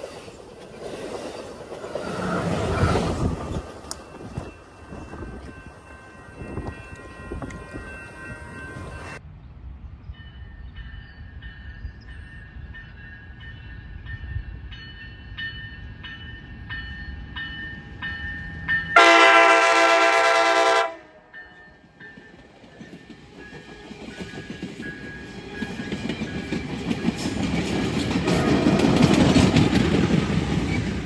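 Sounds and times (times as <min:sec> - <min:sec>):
train rumbling: 0:00.0 - 0:31.0
train horn blast: 0:19.0 - 0:21.3.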